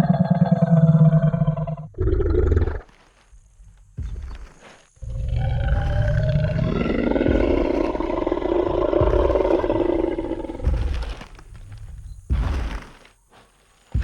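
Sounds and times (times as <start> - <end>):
rasping dinosaur roar: 0.0 - 2.9, 5.0 - 11.3
heavy low rumbling: 4.1 - 12.9
deep thud: 5.6 - 13.1.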